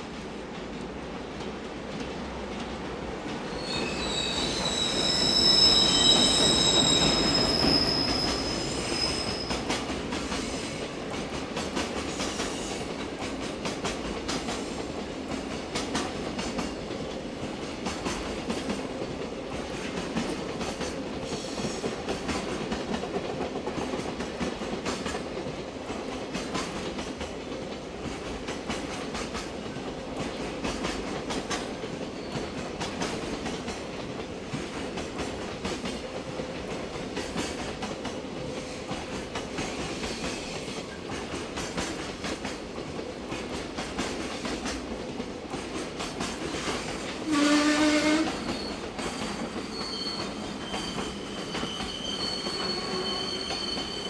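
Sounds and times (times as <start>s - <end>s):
electric locomotive whine: 3.5s - 10.9s, 46.8s - 54.0s.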